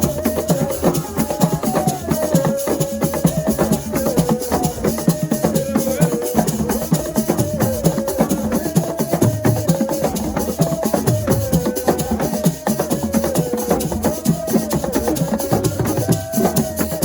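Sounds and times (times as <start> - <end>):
fast percussion music: 0.0 - 17.0.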